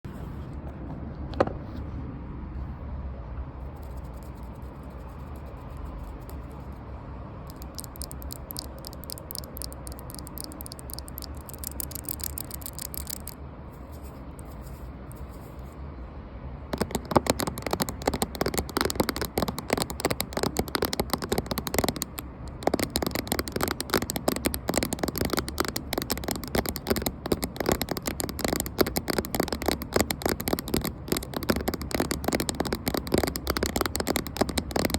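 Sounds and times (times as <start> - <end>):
fingers tapping on a camera: 7.5 - 13.4, 16.8 - 34.9.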